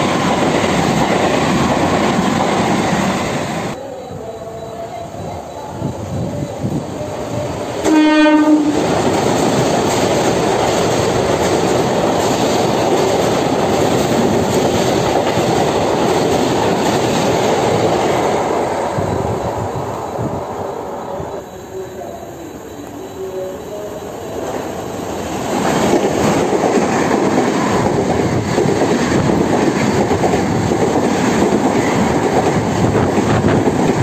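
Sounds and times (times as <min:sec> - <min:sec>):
train wheel and rail noise: 0:00.0 - 0:34.0
train horn blast: 0:07.8 - 0:08.9.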